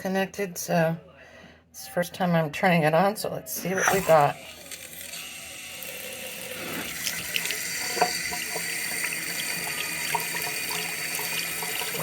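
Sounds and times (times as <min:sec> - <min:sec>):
water running into sink: 0:03.8 - 0:12.0.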